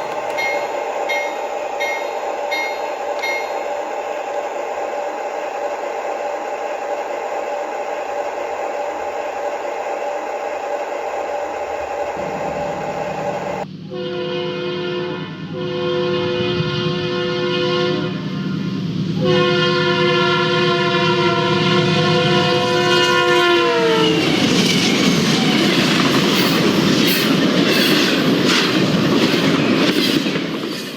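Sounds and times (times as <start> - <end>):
train rumbling: 0.0 - 30.9
locomotive air horn blasts: 12.2 - 18.6, 19.2 - 24.2.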